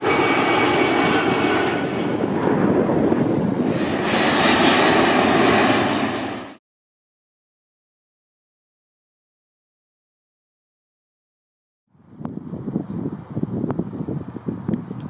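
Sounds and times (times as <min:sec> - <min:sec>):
jet engines running: 0:00.0 - 0:06.6.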